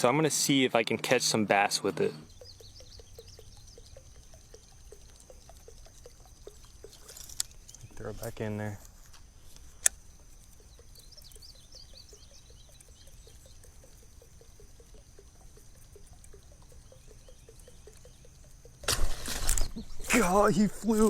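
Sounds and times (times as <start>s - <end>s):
lure ticking and splashing: 2.2s - 21.0s
loud fish splash: 18.8s - 20.3s.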